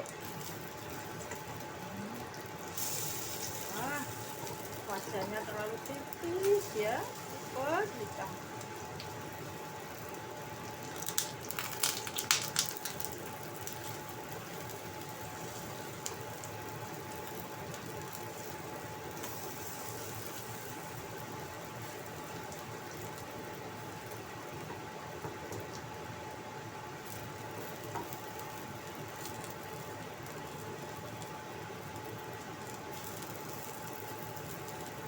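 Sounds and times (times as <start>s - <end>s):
batter sizzling in oil: 0.0s - 35.0s
person talking: 3.7s - 4.2s, 4.9s - 8.4s.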